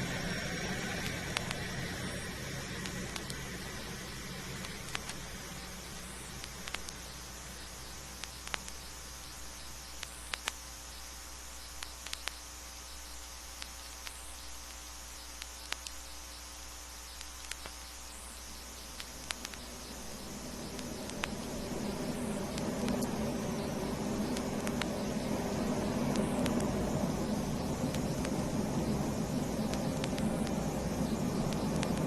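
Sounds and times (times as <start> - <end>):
low hum: 0.0 - 32.0
vinyl crackles and clicks: 0.0 - 32.0
vinyl record hiss: 0.0 - 32.0.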